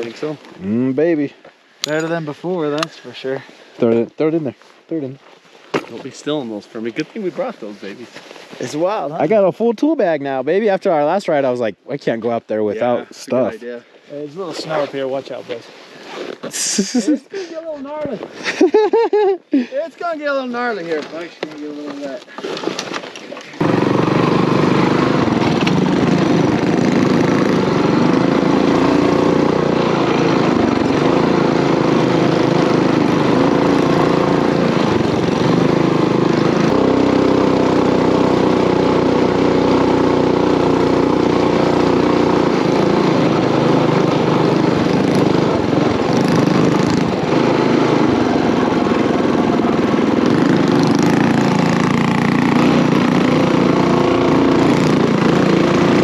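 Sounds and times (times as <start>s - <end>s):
mini bike engine under load: 21.2s - 56.0s.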